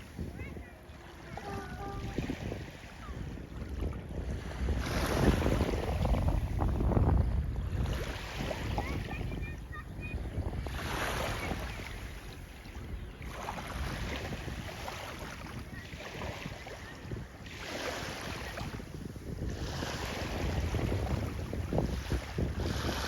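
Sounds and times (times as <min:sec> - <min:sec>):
water rushing and splashing: 0:00.0 - 0:06.7
wind buffeting microphone: 0:00.0 - 0:23.0.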